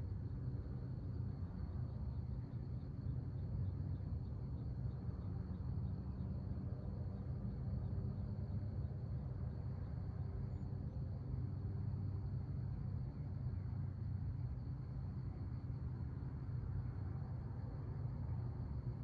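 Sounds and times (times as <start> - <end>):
insect chirps: 0.1 - 19.0.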